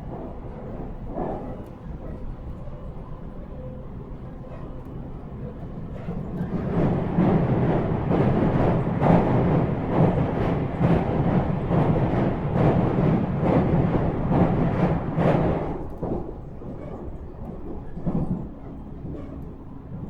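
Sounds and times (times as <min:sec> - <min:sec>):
electric train rumbling: 0:00.0 - 0:20.0.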